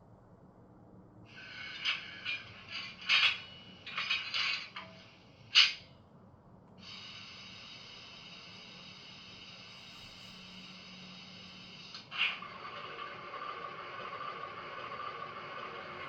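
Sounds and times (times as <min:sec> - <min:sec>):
model locomotive clanks: 0:01.4 - 0:05.9
locomotive running sound: 0:06.8 - 0:16.0.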